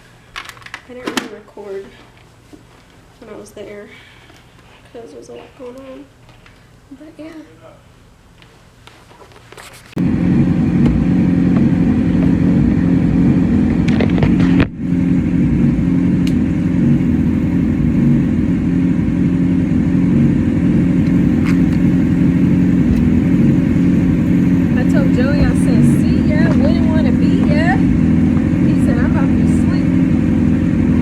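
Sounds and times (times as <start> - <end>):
motorcycle engine running: 10.0 - 31.0
road and wind noise: 10.0 - 31.0.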